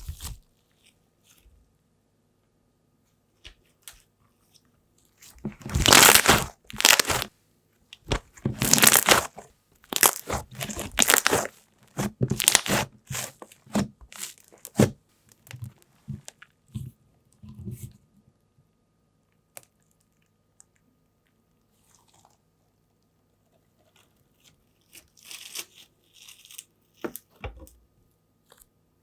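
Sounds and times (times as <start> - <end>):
crunchy slime squeezed by hand: 5.5 - 7.3, 8.1 - 15.0.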